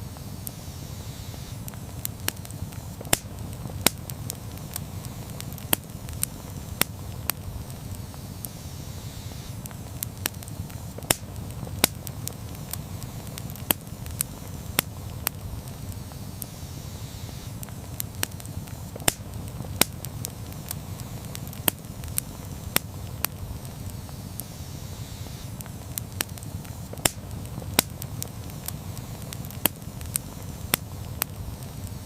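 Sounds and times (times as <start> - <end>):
campfire crackling and popping: 0.0 - 32.0
low rumble of flames: 0.0 - 32.0.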